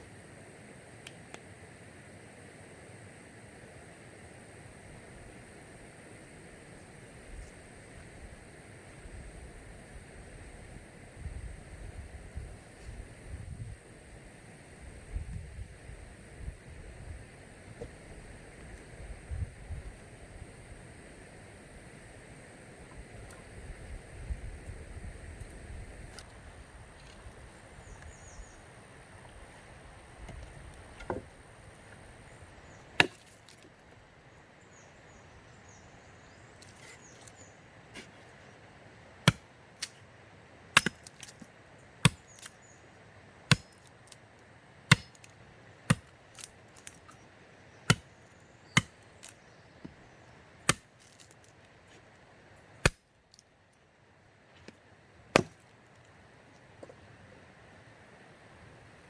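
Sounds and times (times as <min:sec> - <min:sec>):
wood being chopped: 0:30.3 - 0:31.3, 0:32.9 - 0:33.6, 0:39.3 - 0:39.9, 0:40.8 - 0:41.4, 0:42.0 - 0:42.5, 0:43.5 - 0:43.9, 0:44.9 - 0:45.3, 0:45.9 - 0:47.0, 0:48.8 - 0:50.0, 0:50.7 - 0:51.3, 0:52.8 - 0:53.0, 0:55.4 - 0:55.7.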